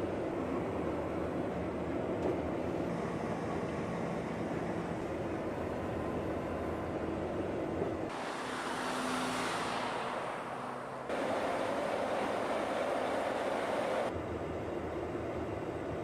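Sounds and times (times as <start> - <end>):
vehicle noise: 0.0 - 14.2
hiss: 8.1 - 14.1.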